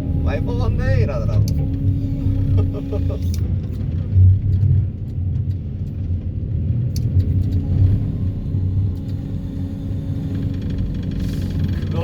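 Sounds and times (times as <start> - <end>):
excavator vibro hammer rumbling: 7.6 - 12.0.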